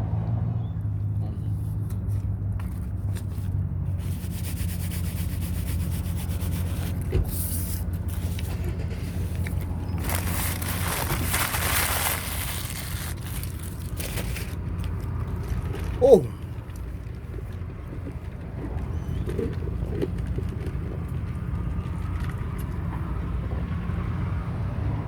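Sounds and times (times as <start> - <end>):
rubbing and rustling: 2.0 - 16.0.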